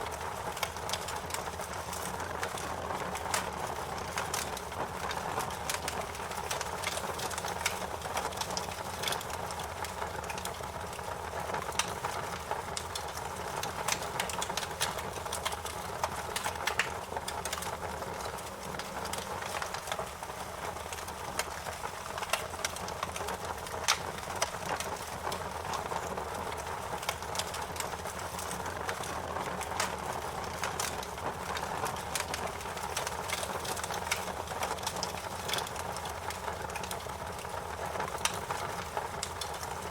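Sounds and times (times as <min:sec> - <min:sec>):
fire pops and snaps: 0:00.1 - 0:39.9.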